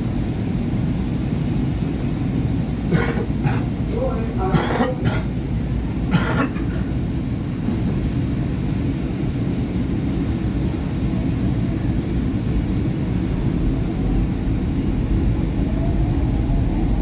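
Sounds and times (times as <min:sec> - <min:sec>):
train rumble from inside car: 0:00.0 - 0:17.0
rising motor whine: 0:13.5 - 0:17.0.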